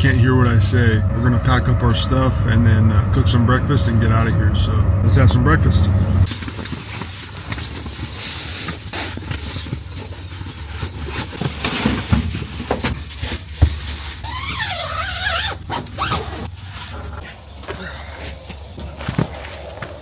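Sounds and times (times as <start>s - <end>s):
wavering warbling sound: 0.0s - 6.3s
train rumbling: 0.0s - 14.1s
gear knocking and rustling: 6.2s - 17.3s.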